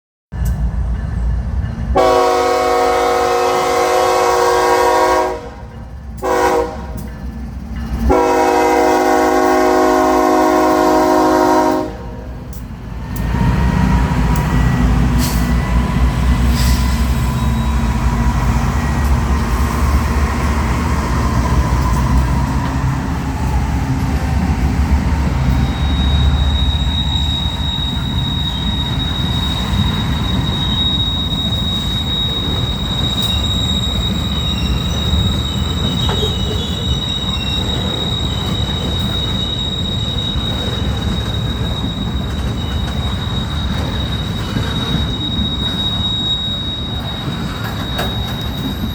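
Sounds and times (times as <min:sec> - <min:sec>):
diesel locomotive rumble: 0:00.3 - 0:48.9
train horn blasts: 0:02.0 - 0:07.1, 0:08.1 - 0:12.4
faint thin squeal: 0:14.4 - 0:20.0, 0:25.5 - 0:48.9.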